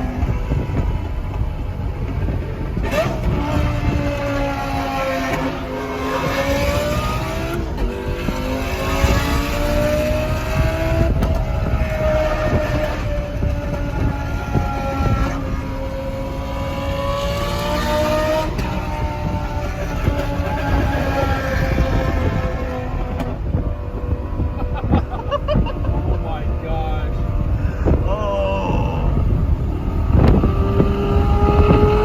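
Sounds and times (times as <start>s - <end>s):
car engine accelerating: 0.0s - 32.0s.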